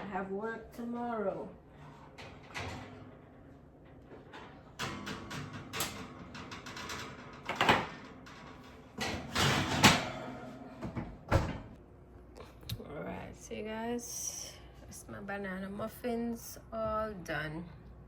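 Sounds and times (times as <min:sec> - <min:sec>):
kitchen clatter: 0:04.1 - 0:11.8.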